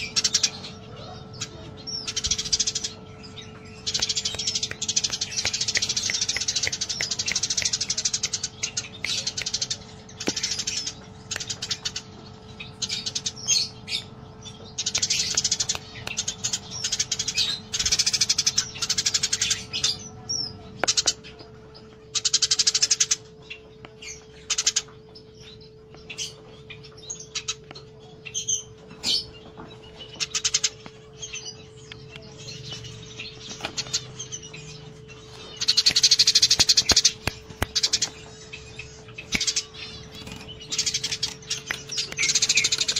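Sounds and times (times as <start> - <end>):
faint hum: 0.0 - 42.9
sparrows chirping: 0.0 - 42.9.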